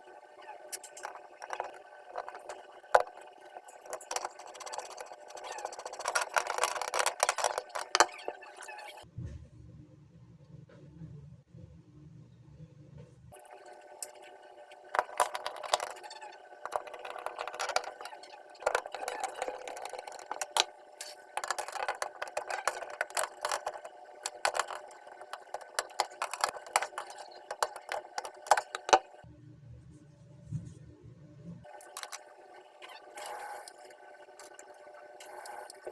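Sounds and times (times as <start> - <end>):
small hard parts clinking: 21.3 - 29.0.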